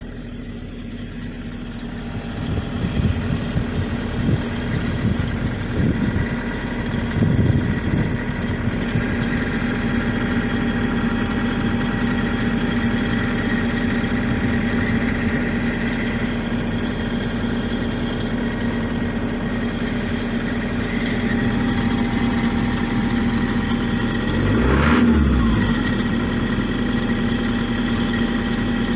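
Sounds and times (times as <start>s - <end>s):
alternator rattle: 0.0s - 28.9s
engine idling: 0.0s - 28.9s.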